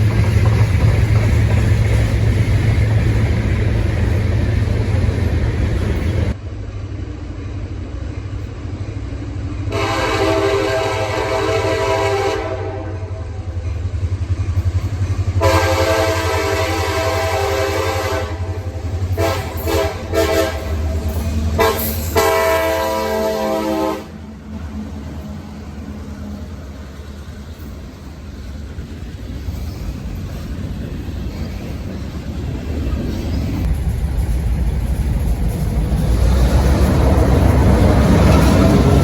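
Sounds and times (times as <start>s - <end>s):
train rumble: 0.0s - 39.0s
locomotive air horn blasts: 9.7s - 13.4s, 15.4s - 21.0s, 21.6s - 24.3s.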